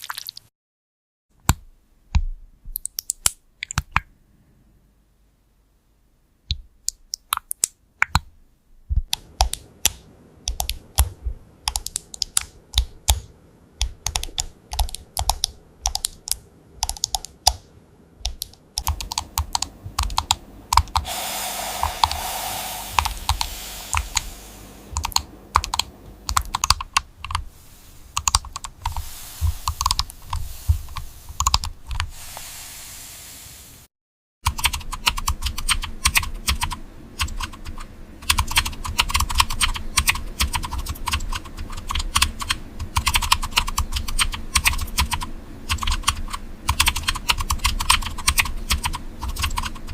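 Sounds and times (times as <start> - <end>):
typing on computer keyboard: 9.1 - 17.6, 18.3 - 21.0, 25.0 - 27.4, 34.4 - 49.9
steady hiss: 19.0 - 33.9.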